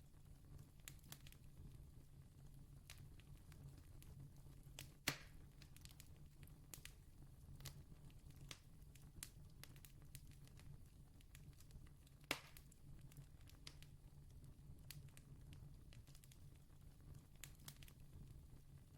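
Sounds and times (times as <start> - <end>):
campfire crackling: 0.5 - 1.7, 2.8 - 18.9
fire pops: 4.8 - 7.0, 7.6 - 14.0, 14.8 - 18.3.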